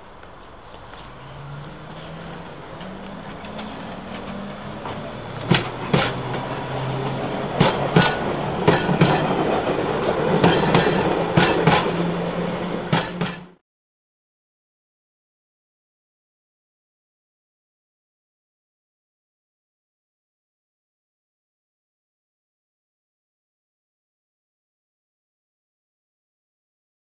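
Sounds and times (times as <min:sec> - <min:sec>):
train low hum: 0:00.0 - 0:13.6
wheels clicking over rail joints: 0:00.1 - 0:13.6.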